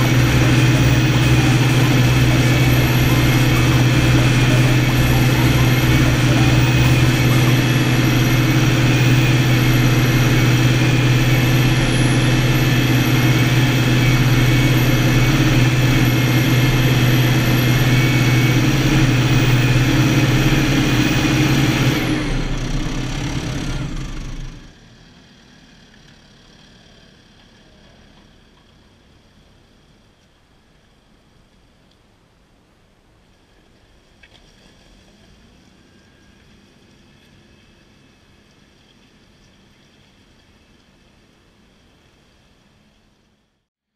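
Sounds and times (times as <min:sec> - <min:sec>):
wavering high whine: 0:00.0 - 0:24.6
tractor diesel engine under load: 0:00.0 - 0:30.1.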